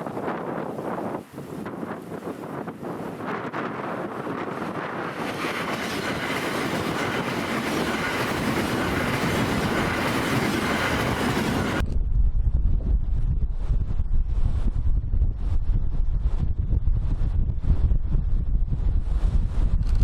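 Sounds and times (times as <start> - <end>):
wind buffeting microphone: 0.0 - 20.0
electric train running past: 3.9 - 11.8.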